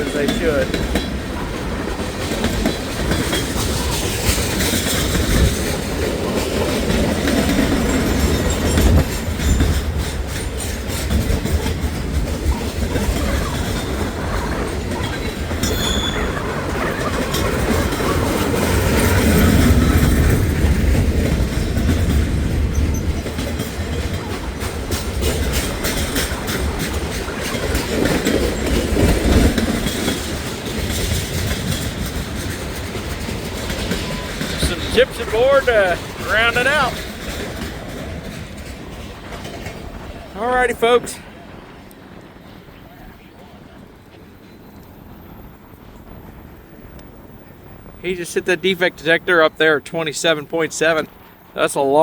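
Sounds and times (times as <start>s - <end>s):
freight train wheels clattering: 0.0s - 43.1s
high squeal: 15.6s - 17.4s.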